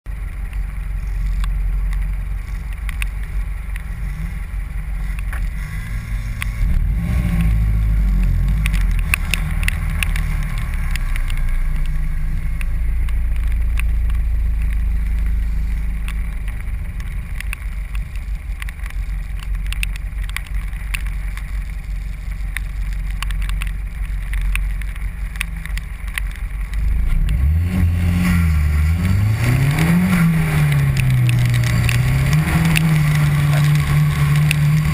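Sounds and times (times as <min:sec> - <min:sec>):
car engine revving: 0:00.1 - 0:34.9.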